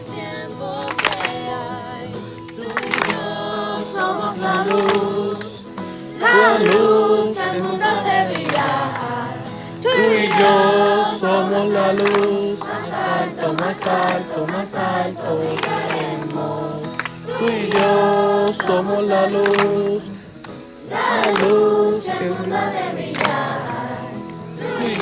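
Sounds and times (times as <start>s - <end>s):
group singing worship song: 0.0s - 25.0s
music: 0.0s - 25.0s.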